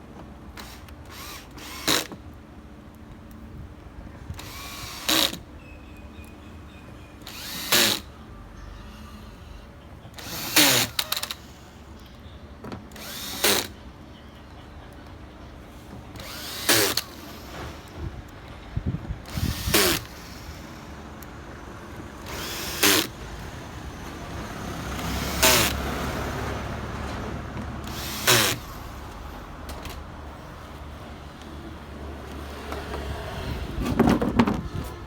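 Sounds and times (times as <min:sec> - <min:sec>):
power drill spinning in short bursts: 0:00.6 - 0:02.1, 0:04.4 - 0:05.4, 0:07.2 - 0:08.1, 0:10.2 - 0:11.5, 0:13.0 - 0:13.8, 0:16.2 - 0:17.9, 0:19.3 - 0:20.8, 0:22.2 - 0:23.2, 0:25.0 - 0:26.1, 0:27.8 - 0:29.2.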